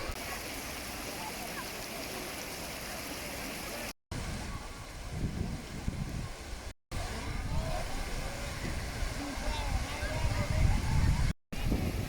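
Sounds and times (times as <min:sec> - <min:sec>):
waterfall rushing over rock: 0:00.0 - 0:04.0.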